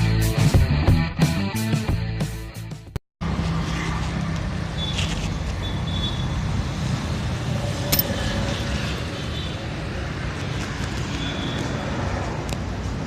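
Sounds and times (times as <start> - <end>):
road traffic engine drone: 3.2 - 13.0.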